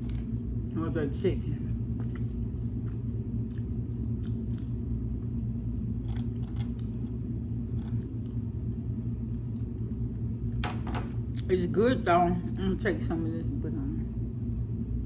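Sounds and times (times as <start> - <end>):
steady low rumble: 0.0 - 15.0
person chewing food: 1.8 - 10.6.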